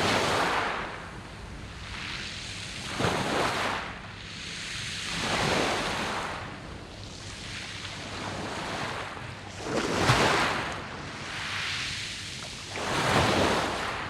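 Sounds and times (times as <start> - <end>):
waves breaking on pebbles: 9.6 - 10.7.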